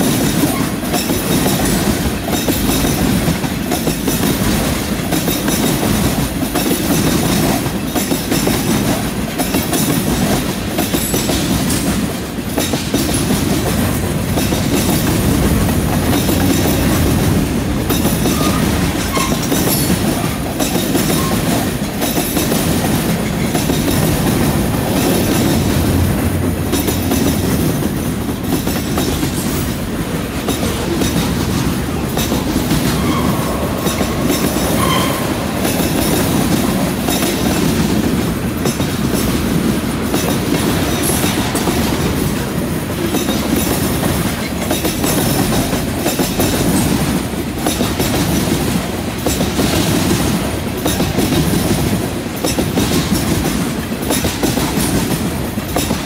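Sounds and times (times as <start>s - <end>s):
freight train wheels clacking on rails: 0.0s - 56.0s
faint wheel squeal: 32.8s - 35.5s.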